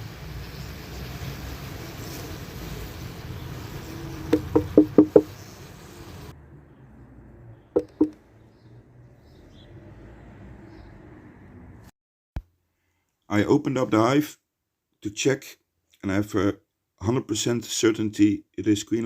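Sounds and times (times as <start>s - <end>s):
bees humming: 0.4s - 6.2s
knocking on a beehive: 4.3s - 5.3s, 7.8s - 8.2s.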